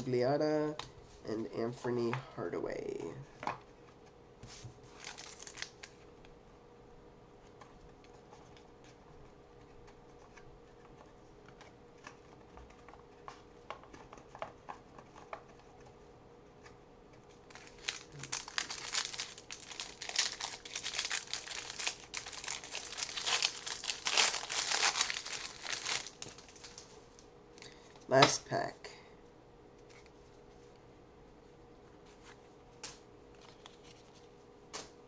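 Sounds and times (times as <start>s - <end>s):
card pack wrapper tearing: 4.9s - 6.0s, 17.5s - 26.8s.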